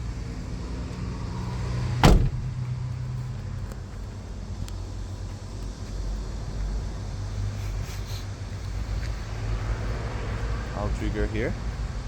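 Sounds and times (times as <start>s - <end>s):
truck cab door slamming: 2.0s - 2.6s
steady low rumble: 2.0s - 3.0s.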